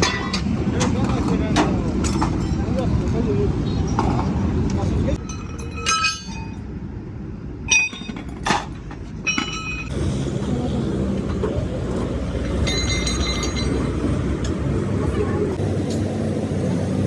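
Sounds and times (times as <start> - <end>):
metal tools clinking: 0.0 - 6.7, 7.7 - 9.9, 11.3 - 14.6
low rumble of traffic: 0.0 - 17.0.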